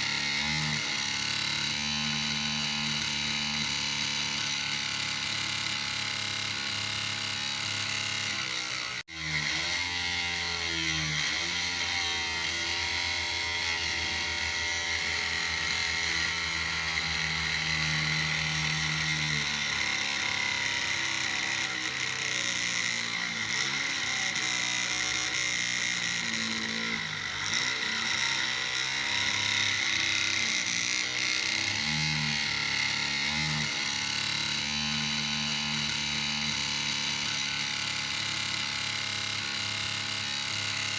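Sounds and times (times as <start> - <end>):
small motor whirring whine: 0.0 - 40.9.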